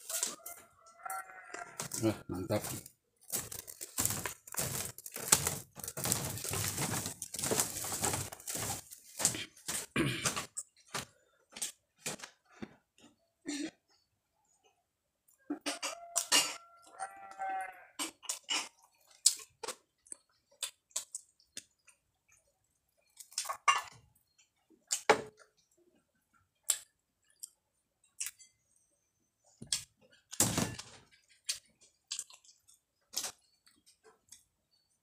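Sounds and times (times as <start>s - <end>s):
person chewing with wet crunches: 1.8s - 9.9s, 18.0s - 23.6s, 24.2s - 28.6s, 31.2s - 34.6s.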